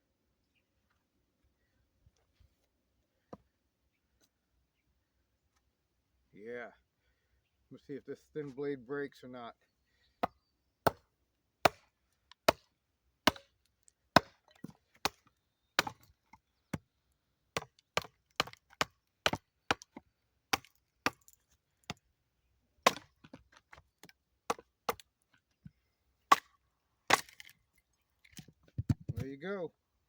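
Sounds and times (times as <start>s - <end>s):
blade chopping wood: 11.6s - 16.1s, 17.6s - 22.0s, 22.8s - 25.1s, 26.3s - 27.5s.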